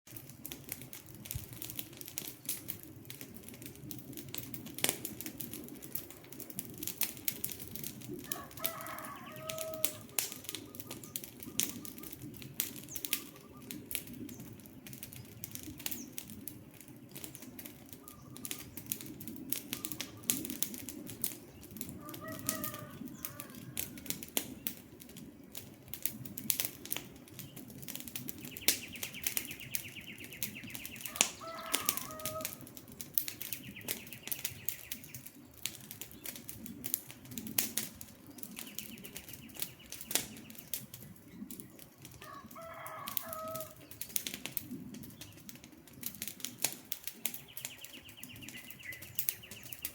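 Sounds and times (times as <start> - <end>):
campfire crackling and popping: 0.1 - 49.9
bird calling: 8.3 - 14.2, 18.0 - 18.9, 28.4 - 32.7, 47.4 - 49.9.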